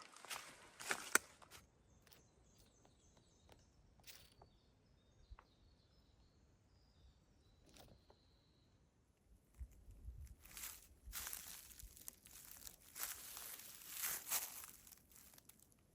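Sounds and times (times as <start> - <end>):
faint high bird chirps: 1.8 - 9.2.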